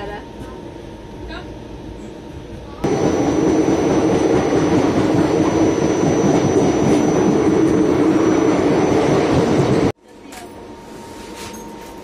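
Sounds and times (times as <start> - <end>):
train wheels rumbling on track: 2.5 - 10.0.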